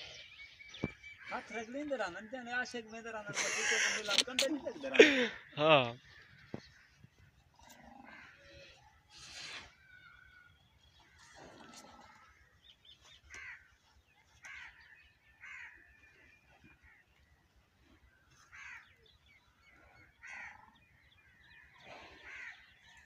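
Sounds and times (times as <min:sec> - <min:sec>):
faint bird calls: 0:18.0 - 0:23.0.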